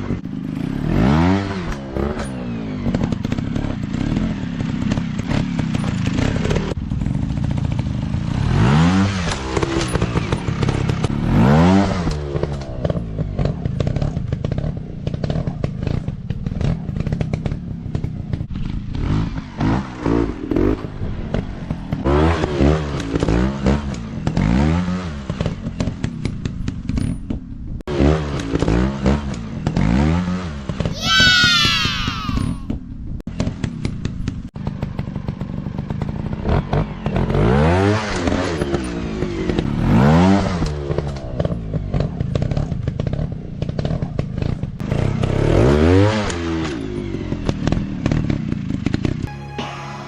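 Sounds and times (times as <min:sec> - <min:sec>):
dirt bike engine revving: 0:00.0 - 0:26.0, 0:35.9 - 0:49.3.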